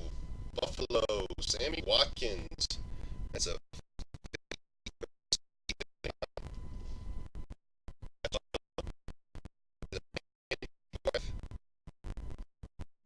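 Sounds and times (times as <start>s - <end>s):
faint steady tone: 0.0s - 3.7s, 5.7s - 8.9s.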